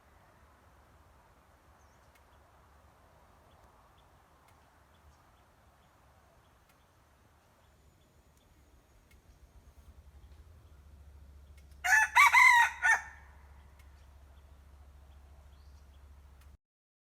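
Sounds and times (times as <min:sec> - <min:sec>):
faint low hum: 0:00.0 - 0:16.6
rooster crowing: 0:11.8 - 0:13.5.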